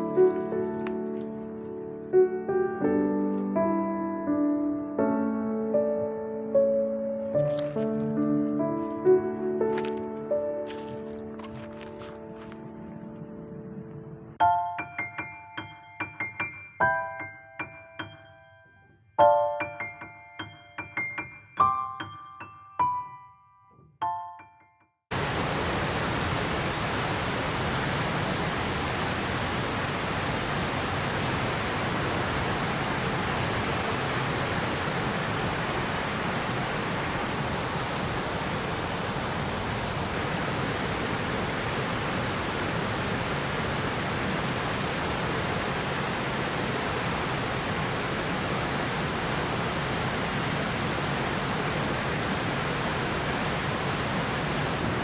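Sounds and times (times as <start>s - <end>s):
piano notes: 0.0s - 25.0s
waterfall rushing: 25.1s - 55.0s.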